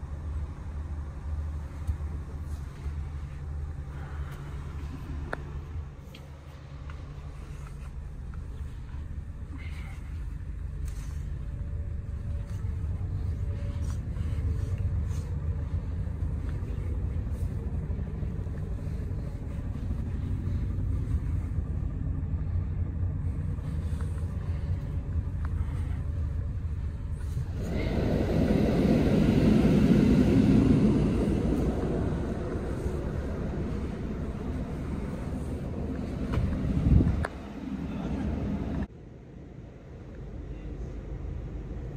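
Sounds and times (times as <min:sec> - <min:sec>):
bus cabin rumble: 0:00.0 - 0:41.9
rushing noise: 0:12.8 - 0:38.9.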